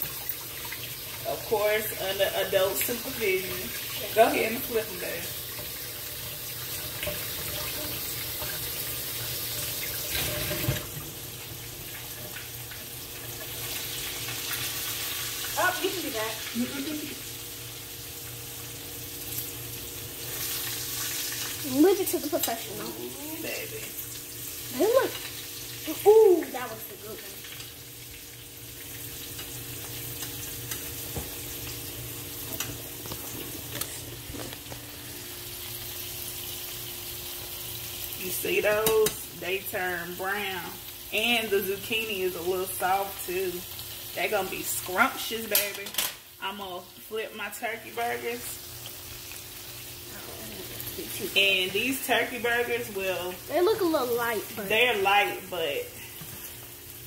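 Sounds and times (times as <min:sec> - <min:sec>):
food frying in hot oil: 0:00.0 - 0:57.0.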